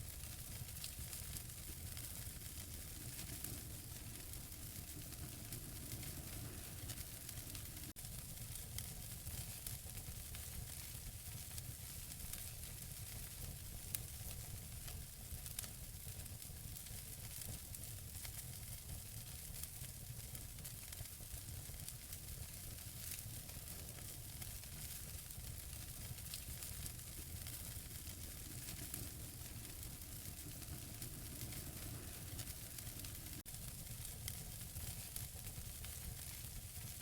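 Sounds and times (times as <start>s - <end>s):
fire hissing: 0.0s - 8.7s, 20.8s - 37.0s
logs crackling and popping: 0.0s - 14.2s, 16.7s - 37.0s
low fire rumble: 0.0s - 37.0s.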